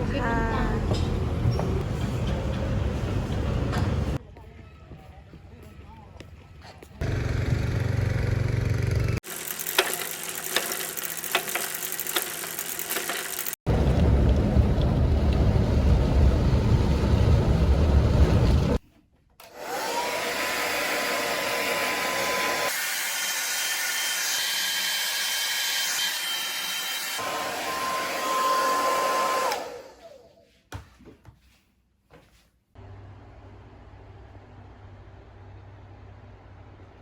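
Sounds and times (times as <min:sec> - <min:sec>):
loud low rumbling: 0:13.7 - 0:18.8
electric blower motor whine: 0:19.4 - 0:30.2.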